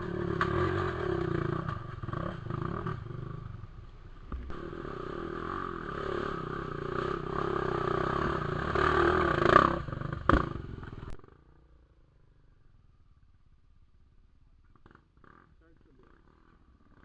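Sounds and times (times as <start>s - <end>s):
motorcycle engine revving: 0.0s - 11.5s.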